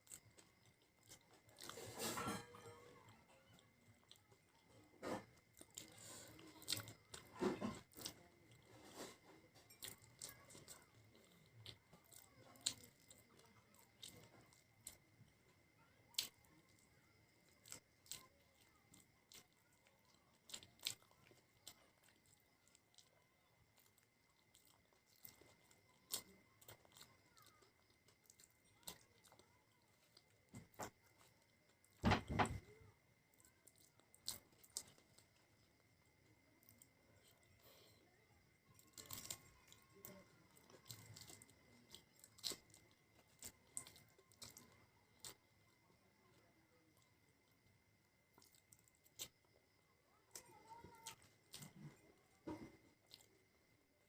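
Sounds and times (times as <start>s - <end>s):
chewing crunchy snacks: 0.0s - 54.0s
faint steady high tone: 1.4s - 24.0s.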